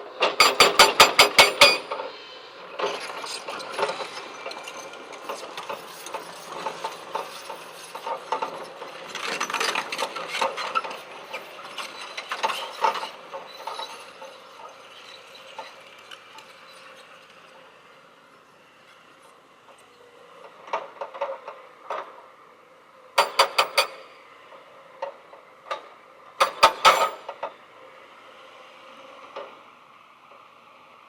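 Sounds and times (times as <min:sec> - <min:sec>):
mechanical clicking and rattling: 0:23.2 - 0:24.0, 0:26.4 - 0:27.2.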